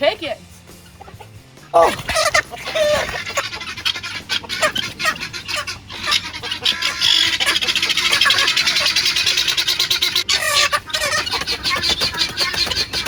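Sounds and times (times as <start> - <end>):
chickens squawking and clucking: 0.7 - 13.0.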